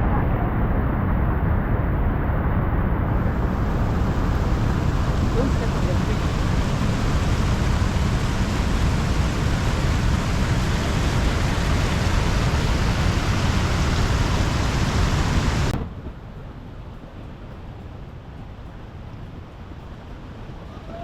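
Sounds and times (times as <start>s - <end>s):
rushing waterfall rapids: 3.2s - 15.8s, 17.1s - 21.0s.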